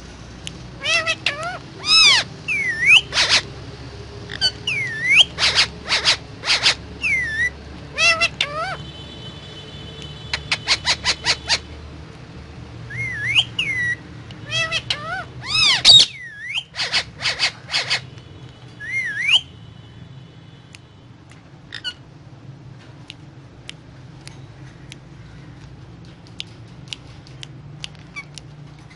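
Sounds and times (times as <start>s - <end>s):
parakeet chirping: 0.8s - 3.5s, 4.3s - 8.9s, 10.2s - 11.8s, 12.9s - 18.1s, 18.8s - 19.5s, 21.7s - 22.1s
faint clicks: 22.8s - 28.9s.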